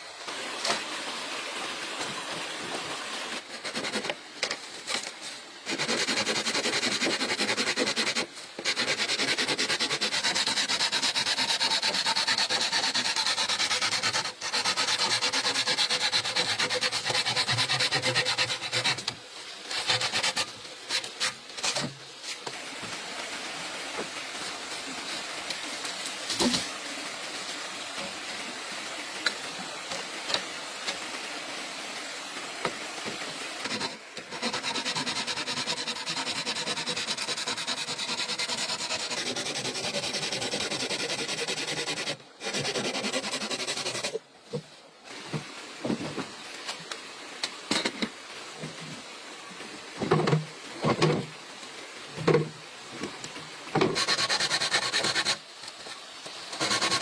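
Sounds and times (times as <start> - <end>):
tool scraping bamboo: 3.4 - 22.0, 33.6 - 44.6, 53.8 - 57.0.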